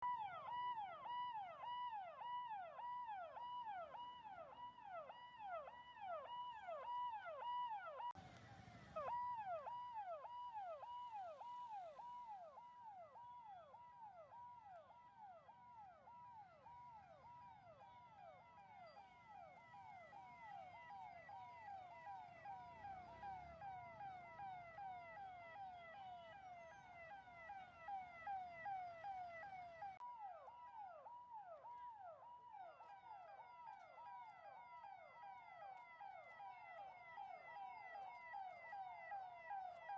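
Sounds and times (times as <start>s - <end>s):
police siren fast wail: 0.0s - 39.9s.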